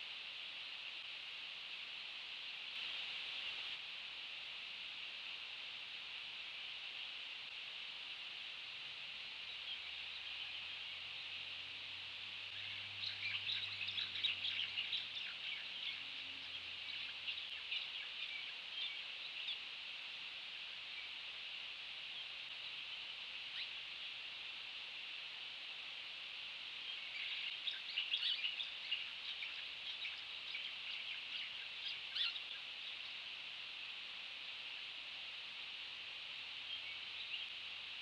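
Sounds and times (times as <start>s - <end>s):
high hiss of outdoor ambience: 0.0s - 38.0s
bird chirping: 12.5s - 19.6s, 26.8s - 33.2s.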